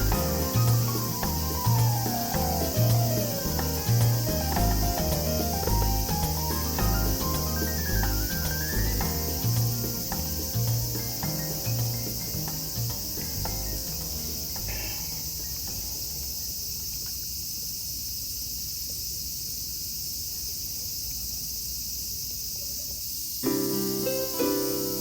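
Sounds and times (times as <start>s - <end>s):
background music notes: 0.0s - 16.4s, 23.4s - 25.0s
insects chirring: 0.0s - 25.0s.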